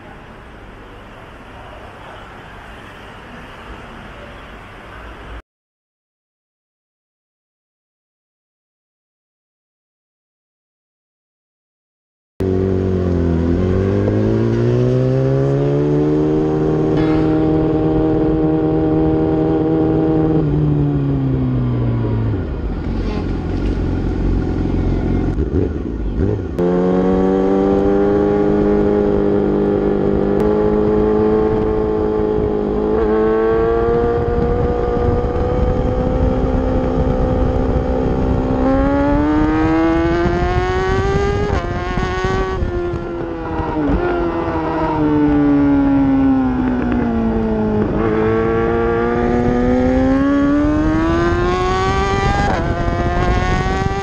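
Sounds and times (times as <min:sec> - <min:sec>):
racing motorcycle engine: 0:12.4 - 0:54.0.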